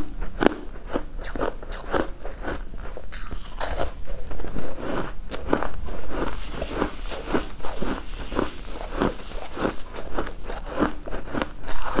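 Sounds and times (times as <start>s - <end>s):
chewing crunchy food: 0.0s - 12.0s.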